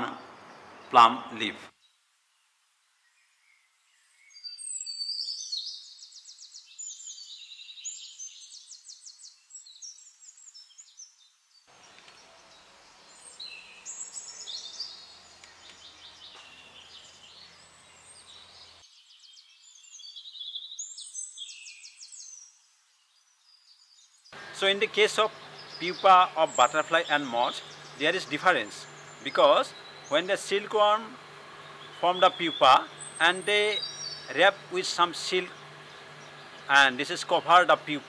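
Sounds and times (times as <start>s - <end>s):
small birds chirping and trilling: 0.0s - 38.0s
faint steady hum and hiss: 24.3s - 38.0s.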